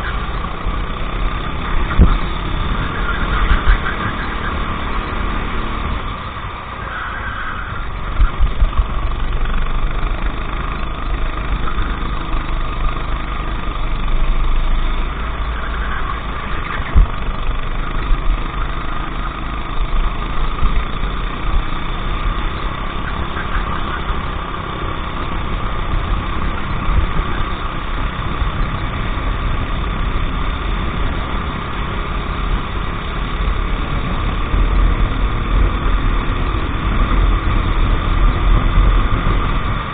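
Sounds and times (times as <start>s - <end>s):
go-kart engine running: 0.0s - 39.9s
heavy low rumble: 0.0s - 39.9s.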